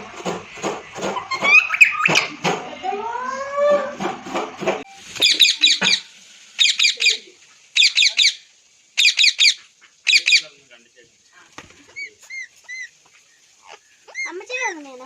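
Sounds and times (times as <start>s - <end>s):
parrot chirping: 1.1s - 2.4s, 5.2s - 10.6s, 11.8s - 15.0s.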